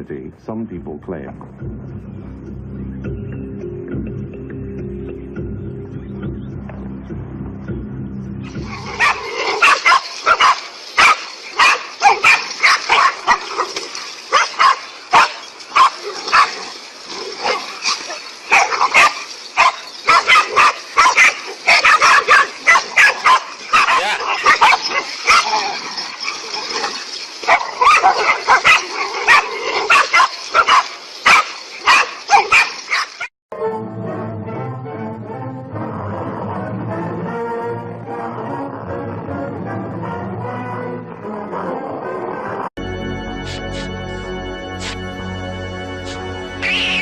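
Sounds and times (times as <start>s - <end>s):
animals barking and yelping: 8.5s - 33.3s, 43.4s - 43.9s, 44.8s - 45.0s, 46.0s - 47.0s.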